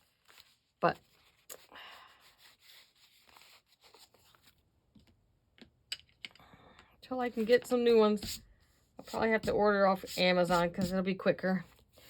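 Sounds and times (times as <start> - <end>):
paper rustling: 0.0 - 4.6
scratchy rubbing on paper: 2.1 - 4.3, 7.3 - 12.0.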